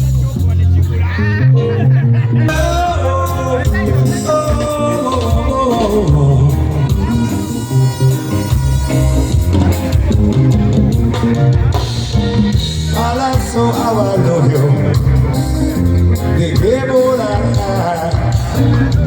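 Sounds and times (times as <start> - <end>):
live band amplified music: 0.0 - 19.0
person singing: 2.3 - 7.8, 12.8 - 19.0.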